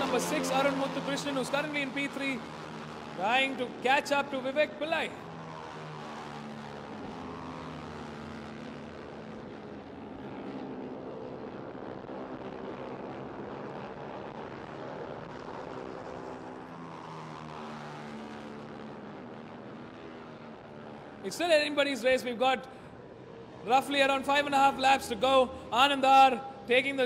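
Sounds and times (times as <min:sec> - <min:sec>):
motorcycles passing at high revs: 0:00.0 - 0:21.4.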